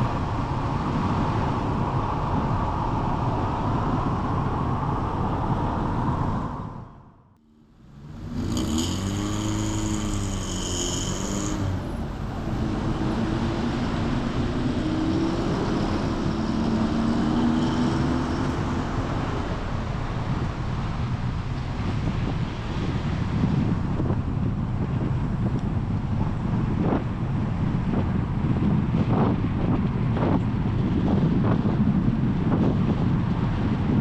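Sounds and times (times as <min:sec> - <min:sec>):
tyres and wind rushing: 0:00.0 - 0:34.0
vehicle engine humming: 0:07.4 - 0:26.6.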